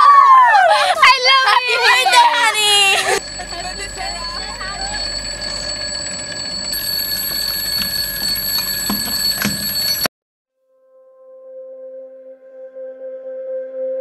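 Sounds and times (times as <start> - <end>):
alarm clock ringing: 3.0 - 10.1
alarm clock handling clicks: 6.3 - 10.1.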